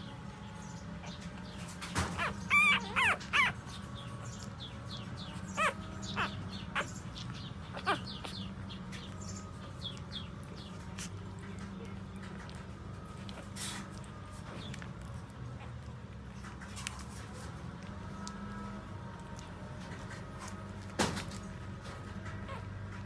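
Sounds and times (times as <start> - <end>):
puppies squealing and whimpering: 1.0 - 11.2, 22.4 - 23.0.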